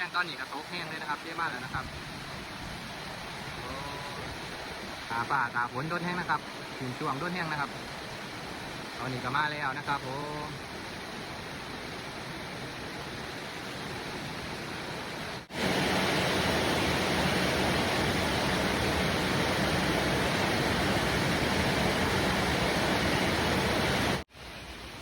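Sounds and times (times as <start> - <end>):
heavy rain falling: 3.3 - 7.6, 14.6 - 25.0.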